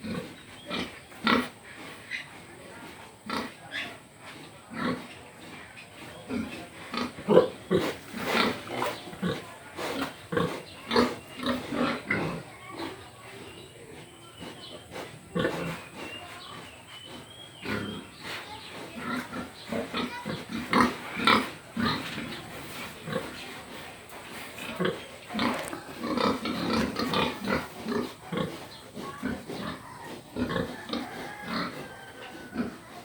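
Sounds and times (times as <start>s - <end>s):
pig grunting: 14.3s - 23.9s, 24.6s - 33.0s.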